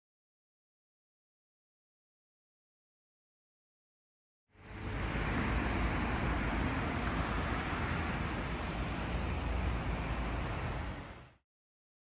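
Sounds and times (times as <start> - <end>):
traffic noise with low rumble: 4.5 - 11.4.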